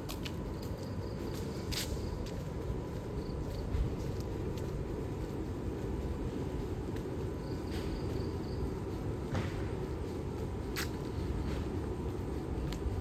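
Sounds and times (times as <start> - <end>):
distant traffic rumble: 0.0 - 13.0
faint ticks: 12.6 - 13.0.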